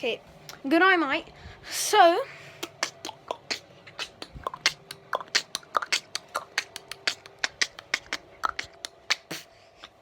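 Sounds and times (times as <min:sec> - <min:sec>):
person making mouth clicks: 0:02.6 - 0:10.0.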